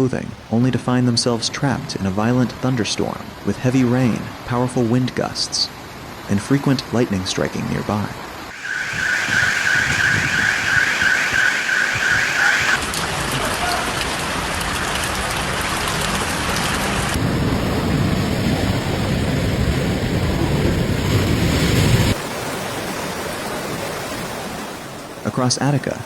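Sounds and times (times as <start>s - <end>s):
electronic alarm chirping: 8.5s - 12.8s
heavy rain pouring: 8.5s - 22.2s.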